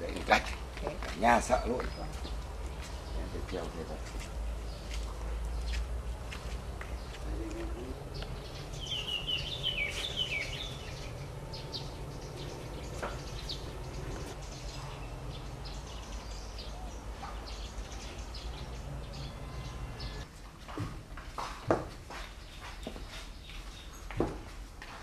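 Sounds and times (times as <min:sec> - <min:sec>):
low outdoor background hum: 0:00.0 - 0:25.0
small bird chirping: 0:01.5 - 0:20.2.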